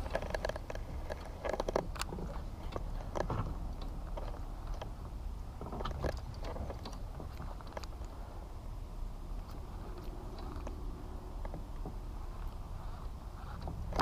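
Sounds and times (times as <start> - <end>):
fishing tackle clicks and knocks: 0.0 - 5.0
steady low rumble: 0.0 - 14.0.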